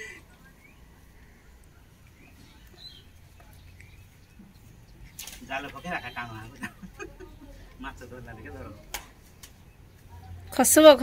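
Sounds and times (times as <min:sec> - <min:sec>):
faint bird chirps: 0:00.0 - 0:07.8.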